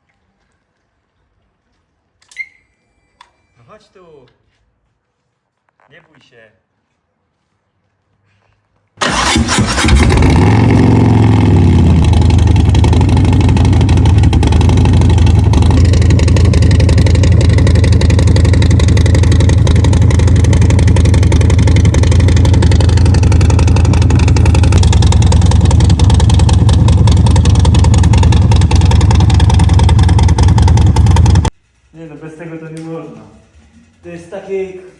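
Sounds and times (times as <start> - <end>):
motorcycle engine idling: 9.1 - 34.9.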